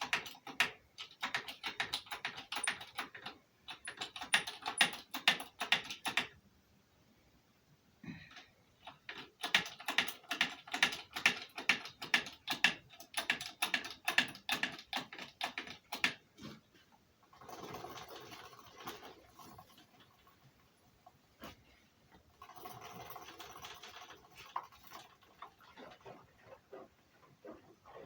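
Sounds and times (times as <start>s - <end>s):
sharp mechanical clicks: 0.0s - 6.4s, 8.8s - 16.2s.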